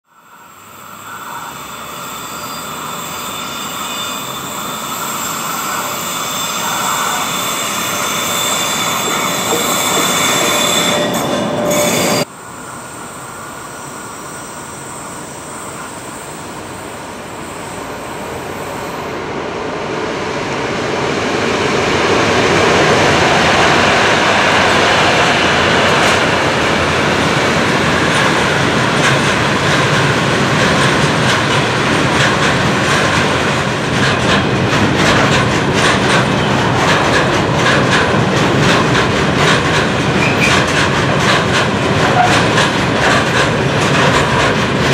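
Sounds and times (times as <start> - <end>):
high-pitched rail tones: 0.1 - 19.2
freight train rumbling past: 0.1 - 44.9.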